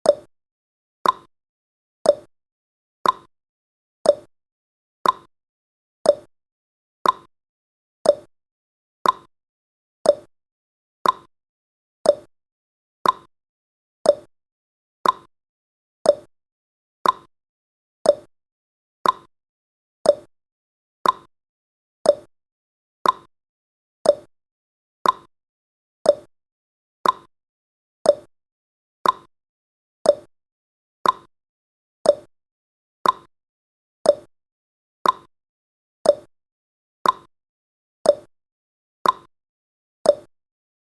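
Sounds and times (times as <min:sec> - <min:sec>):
timer ticking: 0:00.0 - 0:00.3, 0:01.0 - 0:01.3, 0:02.0 - 0:02.3, 0:03.0 - 0:03.3, 0:04.0 - 0:04.3, 0:05.0 - 0:05.3, 0:06.0 - 0:06.3, 0:07.0 - 0:07.3, 0:08.0 - 0:08.3, 0:09.0 - 0:09.3, 0:10.0 - 0:10.3, 0:11.0 - 0:11.3, 0:12.0 - 0:12.3, 0:13.0 - 0:13.3, 0:14.0 - 0:14.3, 0:15.0 - 0:15.3, 0:16.0 - 0:16.3, 0:17.0 - 0:17.3, 0:18.0 - 0:18.3, 0:19.0 - 0:19.3, 0:20.0 - 0:20.3, 0:21.0 - 0:21.3, 0:22.0 - 0:22.3, 0:23.0 - 0:23.3, 0:24.0 - 0:24.3, 0:25.0 - 0:25.3, 0:26.0 - 0:26.3, 0:27.0 - 0:27.3, 0:28.0 - 0:28.3, 0:29.0 - 0:29.3, 0:30.0 - 0:30.3, 0:31.0 - 0:31.3, 0:32.0 - 0:32.3, 0:33.0 - 0:33.3, 0:34.0 - 0:34.3, 0:35.0 - 0:35.3, 0:36.0 - 0:36.3, 0:37.0 - 0:37.3, 0:38.0 - 0:38.3, 0:39.0 - 0:39.3, 0:40.1 - 0:40.3.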